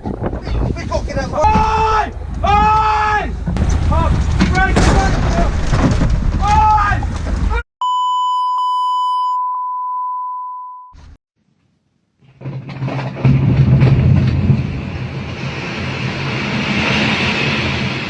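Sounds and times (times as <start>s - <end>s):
loud dense rumbling: 0.7s - 7.6s
censor beep: 7.8s - 11.0s.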